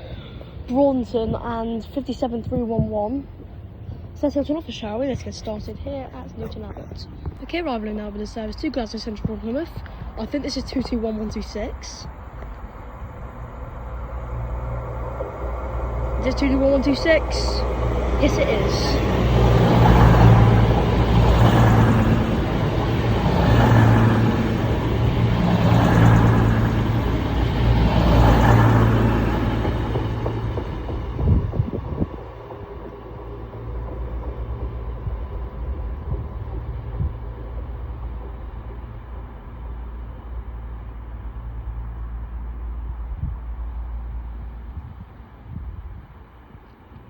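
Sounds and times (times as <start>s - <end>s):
diesel train engines rumbling: 0.0s - 47.0s.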